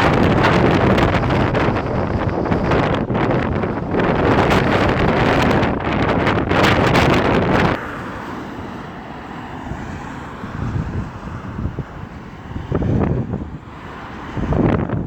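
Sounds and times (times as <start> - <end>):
wind buffeting microphone: 0.0 - 8.0, 8.6 - 15.0.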